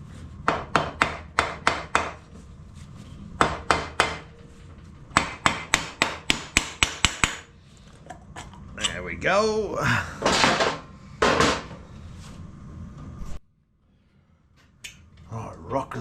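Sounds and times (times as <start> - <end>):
hammer tapping on metal: 3.4 - 4.3, 5.2 - 7.5.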